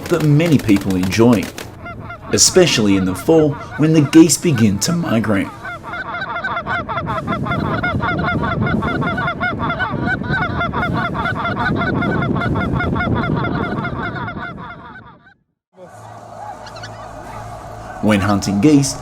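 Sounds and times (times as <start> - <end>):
geese honking: 0.0 - 19.0.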